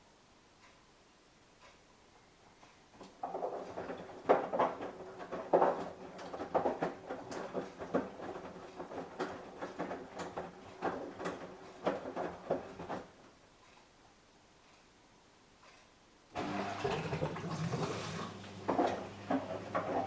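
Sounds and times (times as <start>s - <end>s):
washing machine motor hum: 2.9s - 13.3s, 16.3s - 20.0s
laundry thumping and water sloshing: 3.2s - 13.2s, 16.4s - 20.0s.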